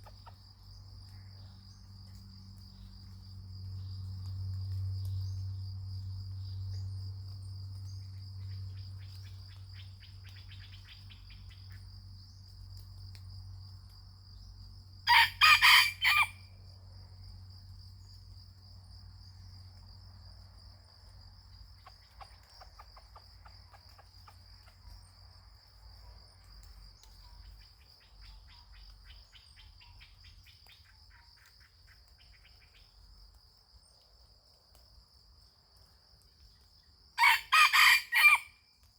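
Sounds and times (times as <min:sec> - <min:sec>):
crickets droning: 0:00.0 - 0:38.9
rooster crowing: 0:15.1 - 0:16.5, 0:37.2 - 0:38.6.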